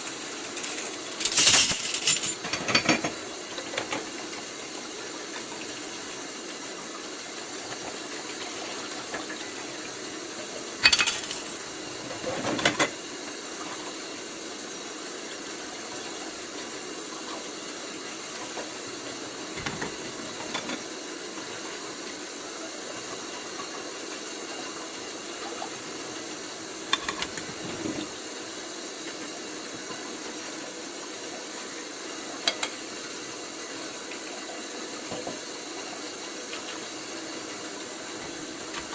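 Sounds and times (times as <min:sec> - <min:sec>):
dishware clinking: 0:00.5 - 0:03.2, 0:10.8 - 0:11.6.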